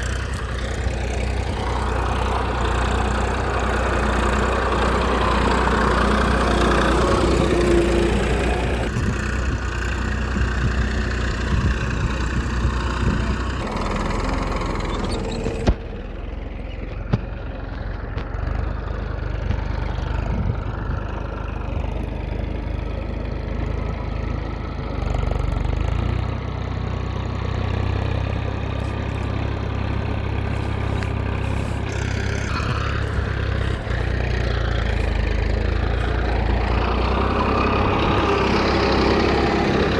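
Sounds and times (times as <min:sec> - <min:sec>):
small dumper engine running: 0:00.0 - 0:39.9.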